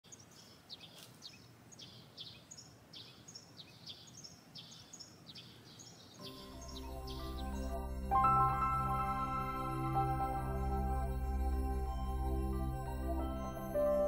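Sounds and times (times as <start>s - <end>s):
small bird chirping: 0.1s - 9.0s
background music: 6.2s - 14.0s.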